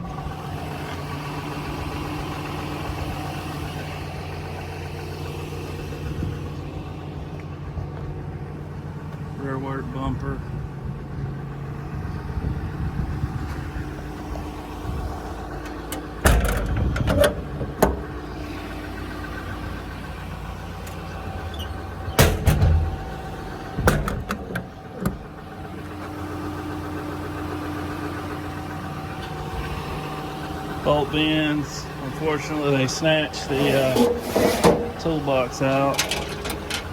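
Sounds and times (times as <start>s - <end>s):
diesel engine idling: 0.0s - 36.9s
loud clunks and knocks: 15.9s - 18.1s, 22.0s - 25.3s, 33.9s - 35.0s.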